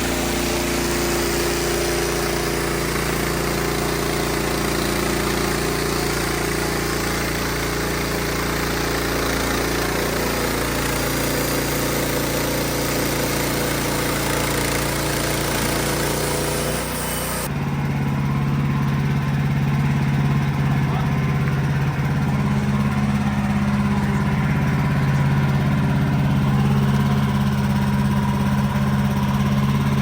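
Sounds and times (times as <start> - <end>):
bandsaw sawing hiss: 0.0 - 17.5
sawmill engine hum: 0.0 - 30.0.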